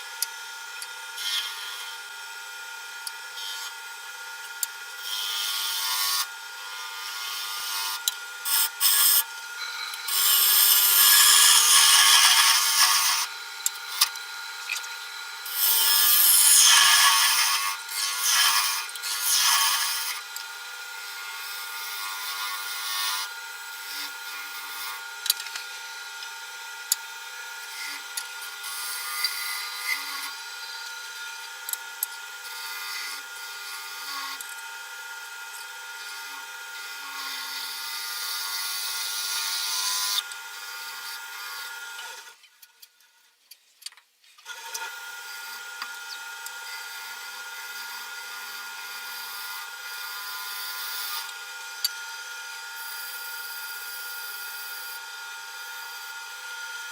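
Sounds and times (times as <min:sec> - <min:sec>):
wood lathe motor hum: 0:00.0 - 0:42.4, 0:44.5 - 0:56.9
tool scraping spinning wood: 0:05.1 - 0:20.4.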